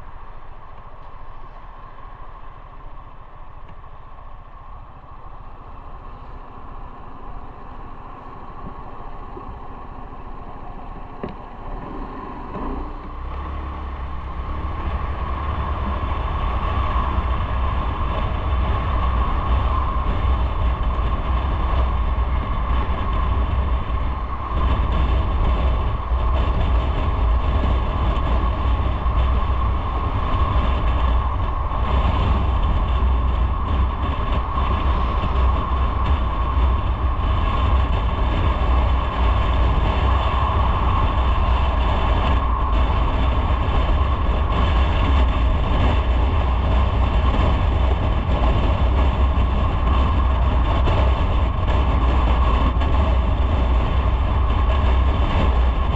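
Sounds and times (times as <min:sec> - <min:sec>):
motorcycle engine running: 0:00.0 - 0:55.9
wind rumbling on microphone: 0:00.0 - 0:55.9.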